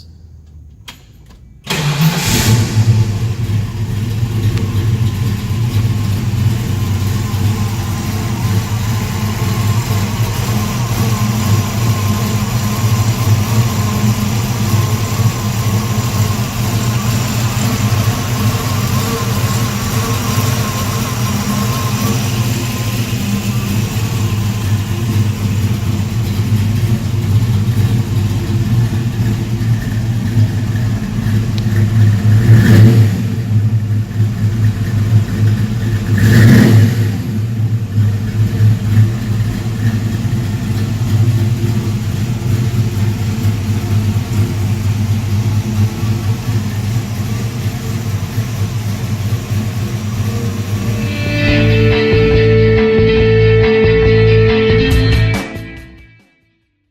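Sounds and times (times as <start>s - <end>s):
car engine idling and revving: 0.0s - 55.3s.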